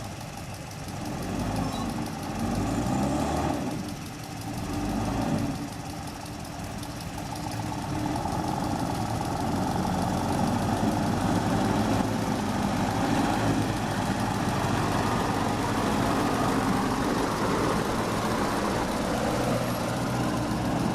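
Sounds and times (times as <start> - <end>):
truck engine running: 0.0 - 20.9.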